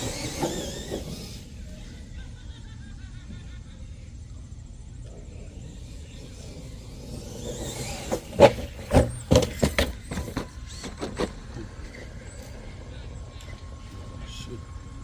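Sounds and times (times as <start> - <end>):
rc truck driving: 0.0 - 15.0
knocks and clatters: 7.4 - 12.1.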